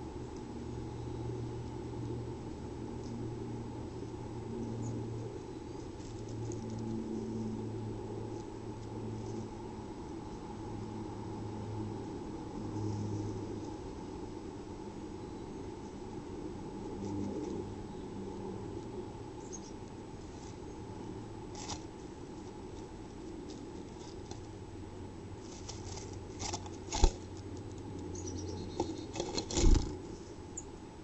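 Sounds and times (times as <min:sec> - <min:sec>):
steady low hum: 0:00.0 - 0:31.0
bird scratching in nest box: 0:21.5 - 0:21.9, 0:25.4 - 0:27.3, 0:28.8 - 0:30.0.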